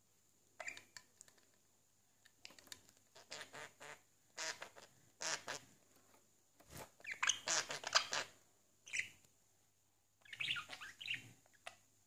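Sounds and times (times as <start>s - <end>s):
budgerigar chirps and clicks: 0.6s - 1.1s, 10.2s - 11.8s.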